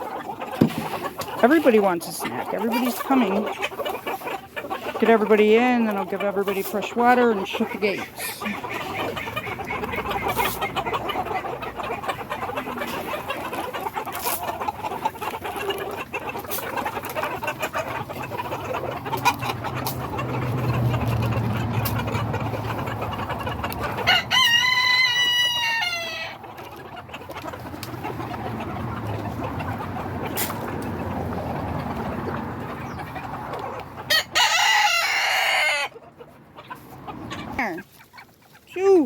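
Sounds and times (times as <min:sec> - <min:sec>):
chickens clucking: 0:00.0 - 0:39.0
rooster crowing: 0:24.1 - 0:26.4, 0:34.1 - 0:35.9.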